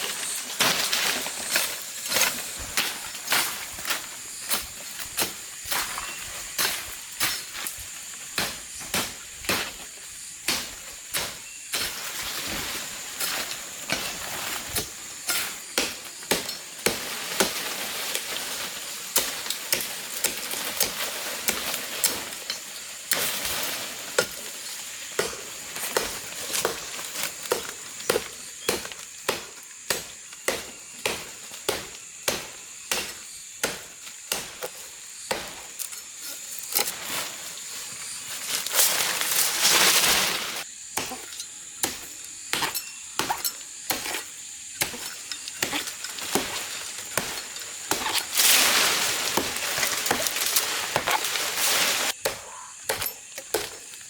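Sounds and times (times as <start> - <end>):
blade chopping: 13.2 - 22.3, 25.2 - 35.9, 39.9 - 53.9
rustling bursts: 45.2 - 52.2.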